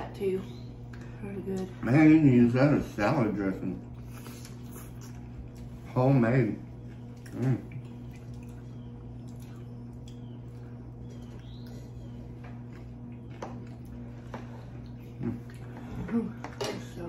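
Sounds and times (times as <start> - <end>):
steady low hum: 0.0 - 17.0
chewing and mouth noises: 3.8 - 5.9, 6.7 - 16.6.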